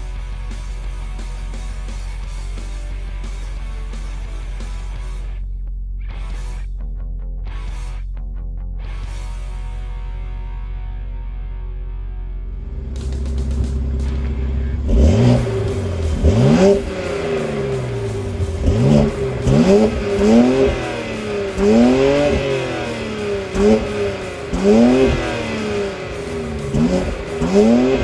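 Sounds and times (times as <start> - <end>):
car engine revving: 12.4 - 28.0.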